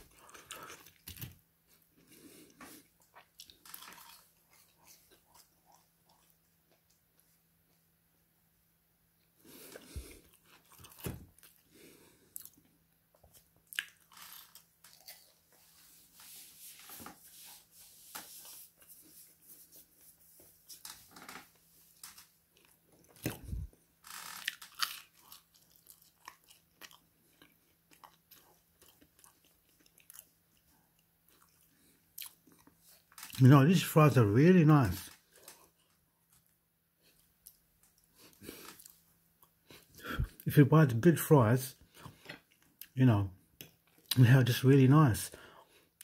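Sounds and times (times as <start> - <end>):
person chewing crunchy food: 0.0 - 7.0, 9.4 - 16.4, 22.0 - 33.4, 35.3 - 40.4.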